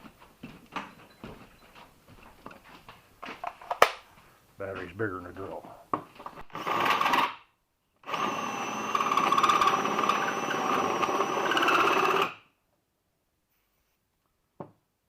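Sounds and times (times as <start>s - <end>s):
cordless drill cutting with hole saw: 6.4s - 7.4s, 8.0s - 12.5s.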